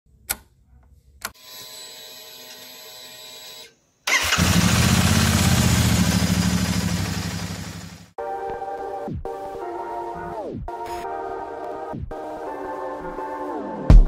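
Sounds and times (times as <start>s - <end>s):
motorcycle engine starting and running: 4.1s - 8.2s.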